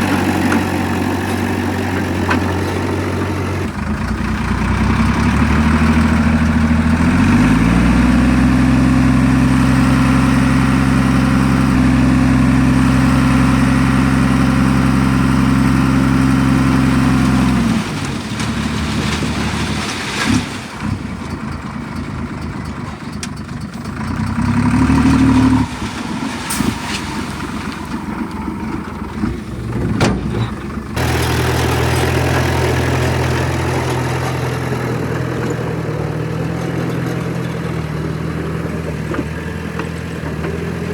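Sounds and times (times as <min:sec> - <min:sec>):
engine revving: 0:00.0 - 0:20.6, 0:24.0 - 0:40.9
diesel engine droning: 0:00.0 - 0:40.9
machine noise and knocks: 0:25.5 - 0:34.6.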